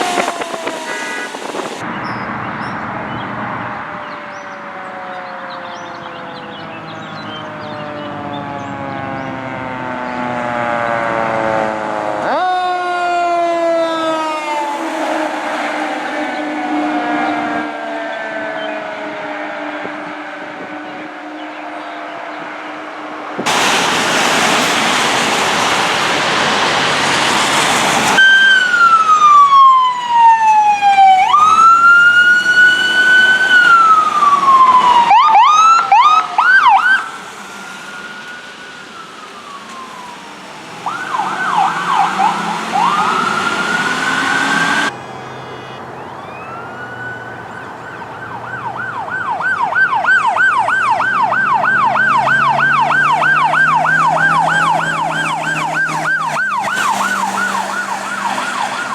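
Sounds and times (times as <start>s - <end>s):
loud rushing noise: 0.0s - 1.8s, 23.4s - 28.2s
electronic siren wail and yelp: 0.0s - 1.9s, 3.5s - 22.4s, 28.2s - 58.9s.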